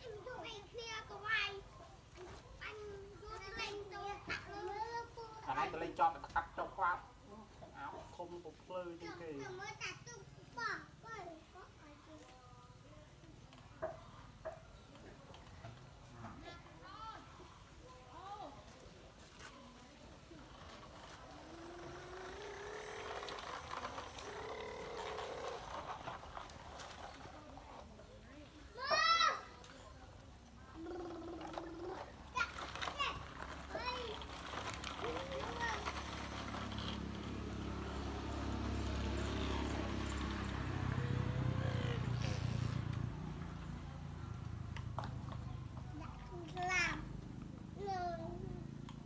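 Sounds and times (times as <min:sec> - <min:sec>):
small motor whining: 0:16.3 - 0:28.8, 0:29.4 - 0:45.4
low motor hum: 0:20.2 - 0:27.5.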